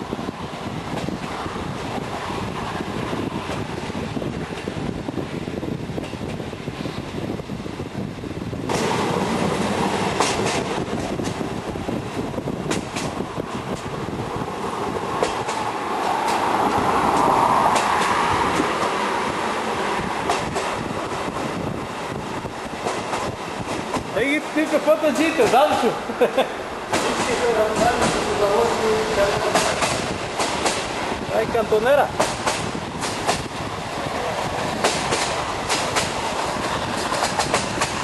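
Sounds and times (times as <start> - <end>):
steam train running: 0.0 - 38.0
wheels clicking over rail joints: 8.7 - 14.1, 14.9 - 21.4, 26.9 - 33.5, 34.1 - 38.0.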